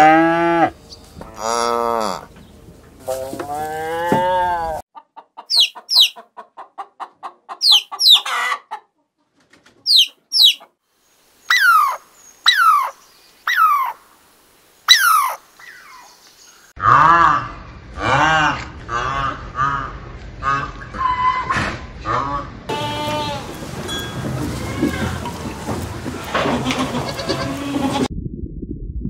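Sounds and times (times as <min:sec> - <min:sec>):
cow mooing: 0:00.0 - 0:02.3, 0:03.0 - 0:04.8, 0:16.8 - 0:19.4
hen clucking: 0:03.1 - 0:10.7, 0:11.5 - 0:14.0, 0:14.9 - 0:16.1, 0:18.9 - 0:28.1
chicks peeping: 0:05.4 - 0:08.7, 0:09.9 - 0:10.7
short falling calls: 0:09.9 - 0:10.6, 0:14.9 - 0:16.1.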